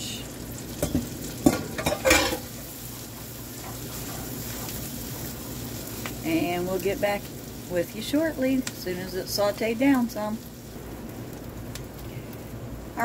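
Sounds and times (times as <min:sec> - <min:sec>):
onions and garlic sizzling: 0:00.0 - 0:13.0
spatula scraping against pan: 0:01.4 - 0:05.6.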